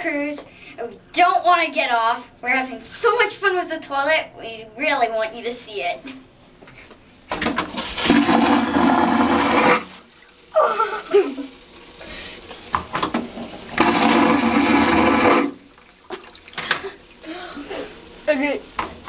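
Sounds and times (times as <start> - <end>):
vacuum toilet flushing whoosh: 7.7 - 12.3, 13.3 - 18.2.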